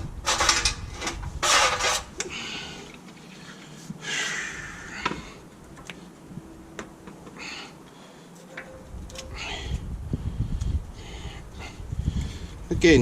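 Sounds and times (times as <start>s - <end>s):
metallic clicks and knocks: 8.4s - 9.3s.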